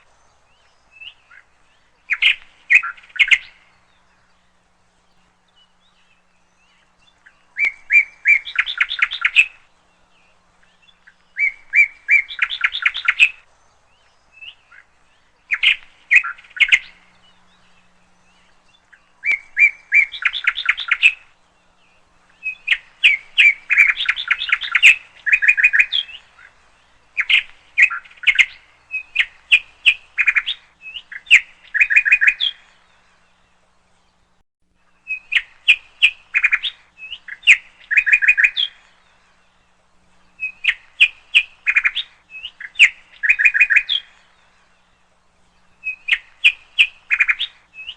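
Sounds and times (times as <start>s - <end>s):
bird chattering calls: 2.1s - 3.6s, 15.5s - 17.0s, 22.4s - 26.6s, 35.1s - 38.8s, 40.4s - 44.1s, 45.8s - 47.9s.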